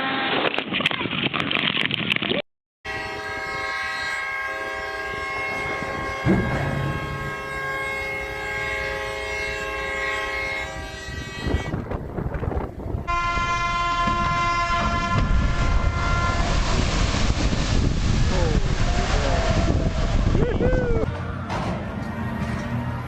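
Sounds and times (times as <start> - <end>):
ship's horn blasts: 2.9 - 16.9, 21.0 - 23.0.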